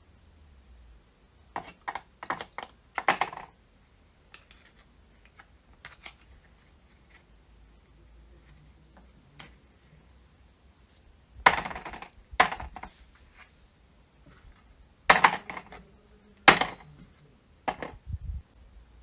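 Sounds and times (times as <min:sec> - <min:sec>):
metal parts clattering on hard surface: 0:11.5 - 0:12.9, 0:15.1 - 0:15.9, 0:16.5 - 0:17.1.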